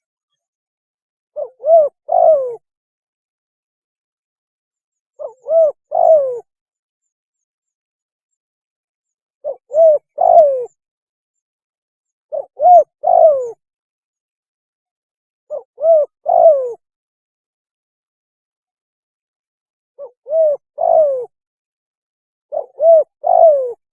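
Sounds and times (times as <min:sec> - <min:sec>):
dove cooing: 0:01.4 - 0:02.6, 0:05.2 - 0:06.5, 0:09.4 - 0:10.8, 0:12.3 - 0:13.6, 0:15.5 - 0:16.8, 0:20.0 - 0:21.4, 0:22.5 - 0:23.8.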